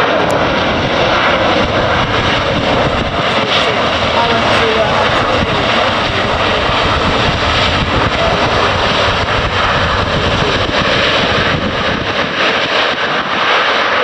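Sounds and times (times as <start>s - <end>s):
jet engines roaring: 0.0s - 14.0s.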